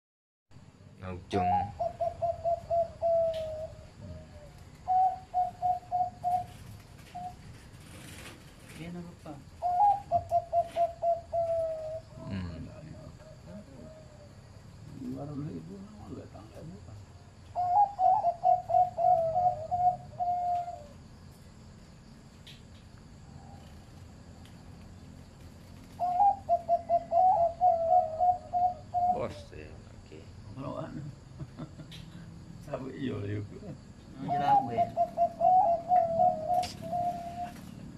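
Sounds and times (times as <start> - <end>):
dove cooing: 1.4 - 8.3, 9.6 - 15.2, 17.5 - 21.1, 25.8 - 29.5, 34.1 - 37.9.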